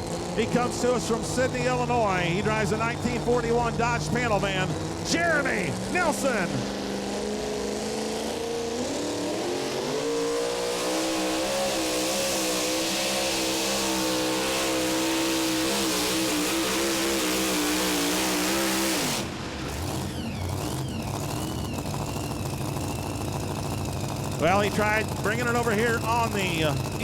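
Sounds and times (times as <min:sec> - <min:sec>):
truck engine at full throttle: 0:00.0 - 0:27.0.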